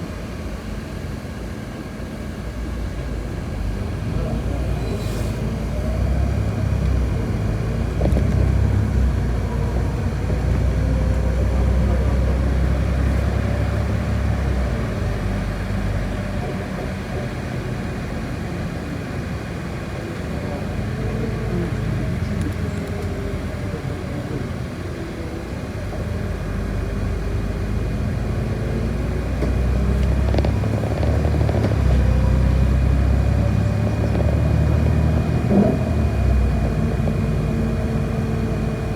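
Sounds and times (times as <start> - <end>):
bus engine drone: 0.0 - 38.9.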